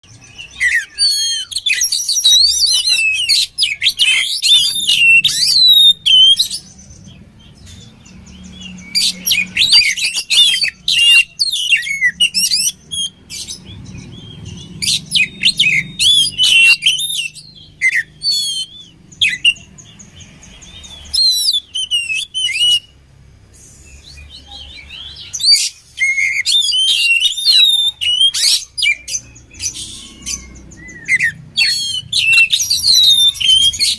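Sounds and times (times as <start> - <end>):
bird singing varied whistles: 0.2 - 6.7, 8.6 - 19.7, 20.8 - 23.0, 25.3 - 33.9.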